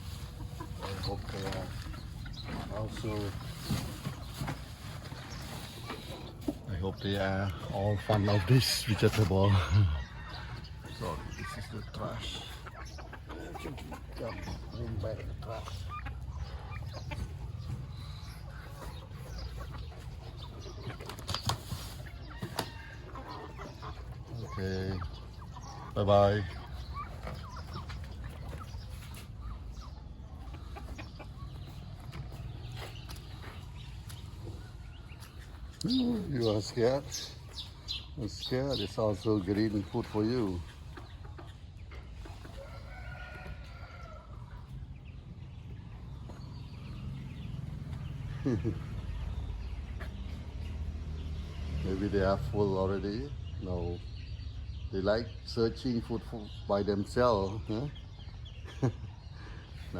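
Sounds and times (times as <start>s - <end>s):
faint rooster crowing: 42.6s - 44.7s.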